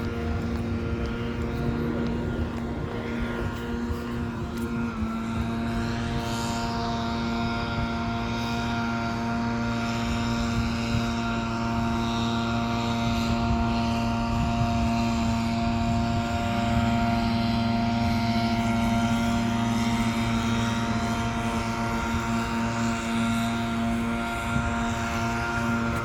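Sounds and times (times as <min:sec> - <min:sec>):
propeller engine droning: 0:00.0 - 0:26.0.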